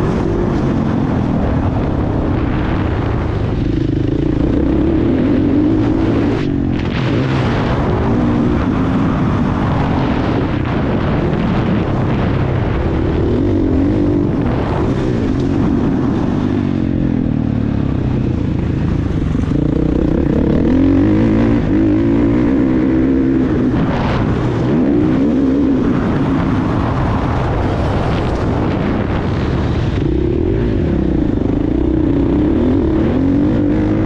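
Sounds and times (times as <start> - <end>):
motocross bike engine revving: 3.4 - 10.4, 18.8 - 26.8, 27.8 - 34.0.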